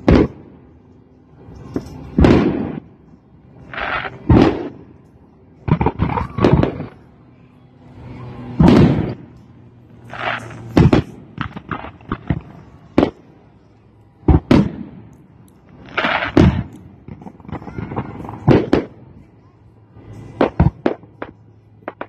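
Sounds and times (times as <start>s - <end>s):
fireworks crackling: 0.0s - 22.0s
firework shells bursting: 8.6s - 13.2s, 14.3s - 19.0s.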